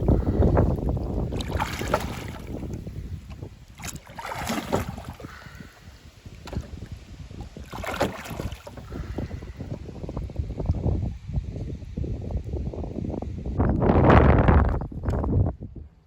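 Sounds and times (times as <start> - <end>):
oars splashing in water: 0.0 - 9.4
wind buffeting microphone: 0.0 - 16.0.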